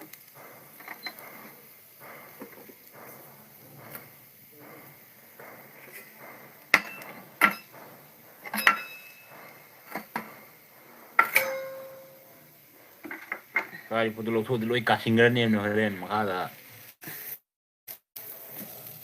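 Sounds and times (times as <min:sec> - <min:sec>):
tableware clinking: 0:06.7 - 0:10.2, 0:11.2 - 0:12.4.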